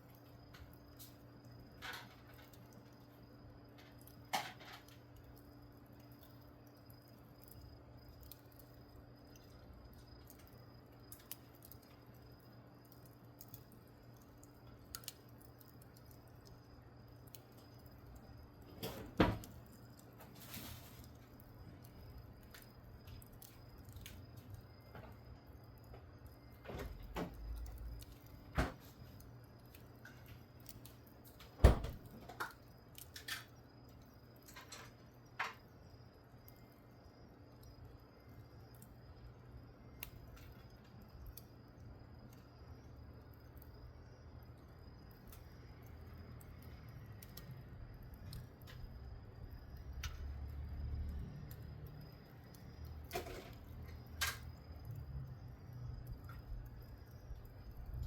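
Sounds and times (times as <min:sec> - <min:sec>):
wood fire crackling: 0:00.0 - 0:58.0
sharp pops of fire: 0:25.8 - 0:33.6, 0:52.5 - 0:54.6.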